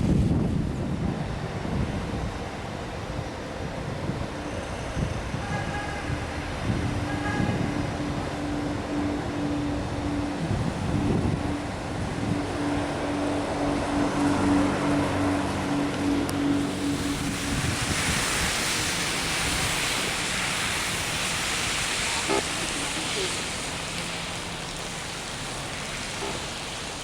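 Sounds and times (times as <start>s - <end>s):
wind buffeting microphone: 0.0s - 27.0s
aircraft engine hum: 6.6s - 27.0s.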